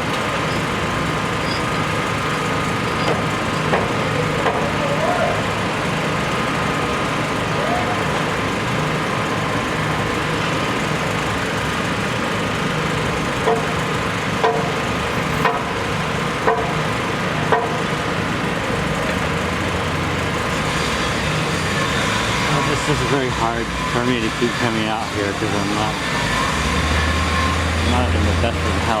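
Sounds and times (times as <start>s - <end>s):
engine and traffic noise: 0.0s - 29.0s
ringing metallic knocks: 13.4s - 15.8s, 16.4s - 18.0s.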